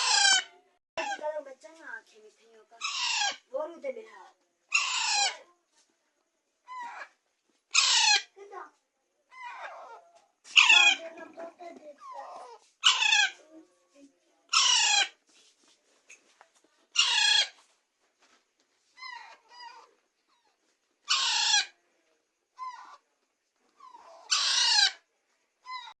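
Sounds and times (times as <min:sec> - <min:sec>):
parakeet chicks screeching: 0:00.0 - 0:01.2, 0:02.8 - 0:03.5, 0:04.7 - 0:05.4, 0:07.7 - 0:08.3, 0:09.4 - 0:11.1, 0:12.1 - 0:13.4, 0:14.5 - 0:15.2, 0:16.9 - 0:17.6, 0:21.0 - 0:21.8, 0:23.9 - 0:25.0.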